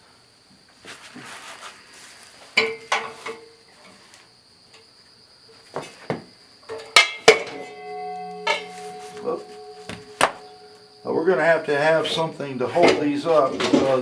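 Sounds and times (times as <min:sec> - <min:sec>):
struck discs ringing: 0:07.0 - 0:12.6
metal discs clanking: 0:07.1 - 0:12.2.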